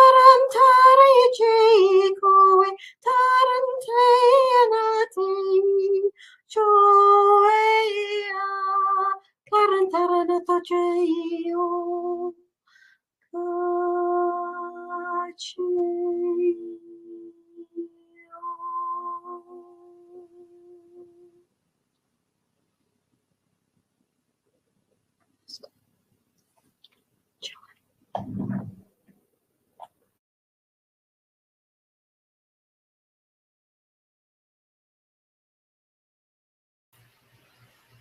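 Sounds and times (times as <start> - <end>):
woman singing wordless phrases: 0.0 - 12.4, 13.4 - 21.4
woman breathing: 12.6 - 13.1.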